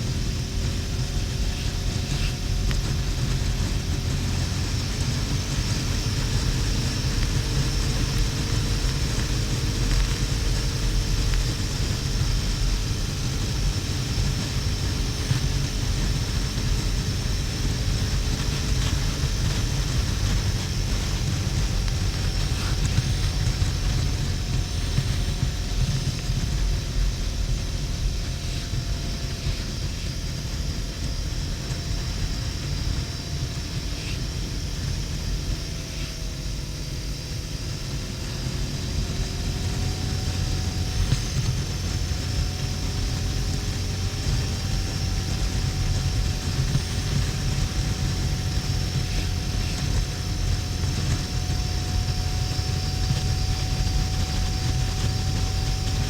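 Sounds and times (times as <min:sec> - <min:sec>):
motorcycle engine rumble: 0:00.0 - 0:56.0.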